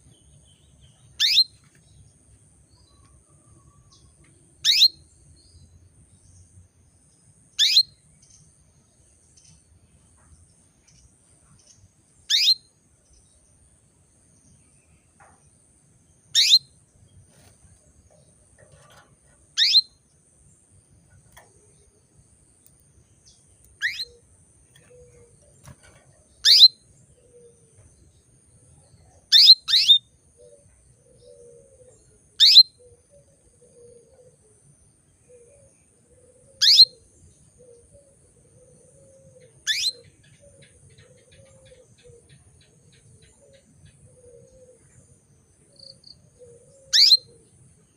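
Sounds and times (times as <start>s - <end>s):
canary calling: 1.2s - 1.5s, 4.6s - 5.0s, 12.3s - 12.6s, 16.4s - 16.7s, 18.7s - 19.9s, 23.6s - 25.8s, 26.4s - 27.5s, 29.3s - 30.0s, 32.4s - 32.7s, 36.6s - 37.0s, 39.2s - 42.2s, 46.4s - 47.4s.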